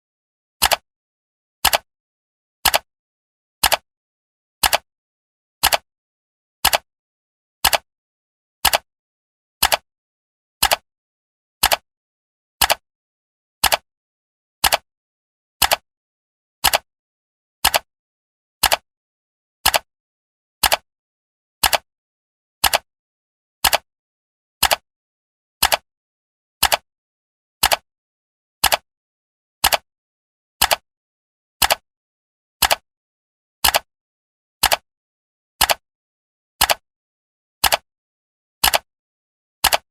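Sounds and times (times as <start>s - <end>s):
clock ticking: 20.6s - 20.8s, 23.6s - 23.8s, 27.6s - 27.8s, 29.6s - 29.8s, 31.6s - 31.8s, 32.6s - 32.8s, 33.6s - 33.9s, 34.6s - 34.8s, 37.6s - 37.8s, 39.6s - 39.9s.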